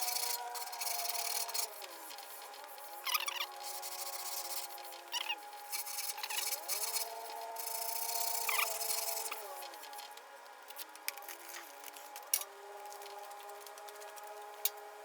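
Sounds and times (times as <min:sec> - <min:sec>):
faint steady tones: 0:00.0 - 0:15.0.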